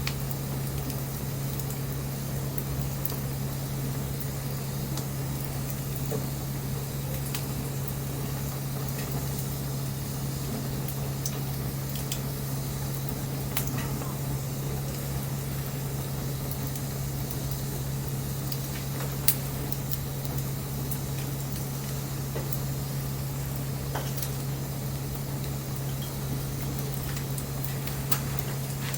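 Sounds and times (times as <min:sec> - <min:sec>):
bonfire crackling and popping: 0:00.0 - 0:28.9
steady low hum: 0:00.0 - 0:28.9.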